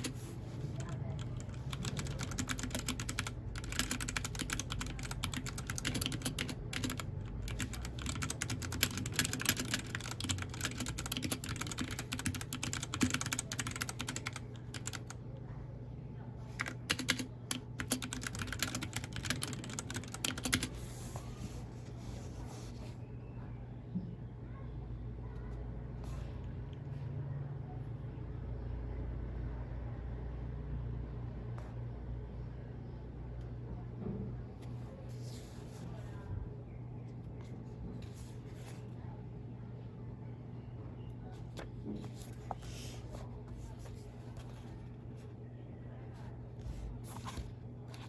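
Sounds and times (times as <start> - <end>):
mechanical keyboard typing: 0.0 - 15.2, 16.5 - 20.7.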